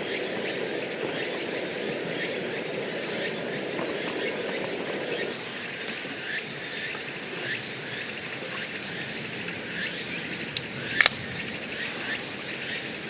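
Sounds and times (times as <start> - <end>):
insect chirps: 0.0 - 13.0
insects buzzing: 0.0 - 13.0
sharp clicks: 10.6 - 11.2.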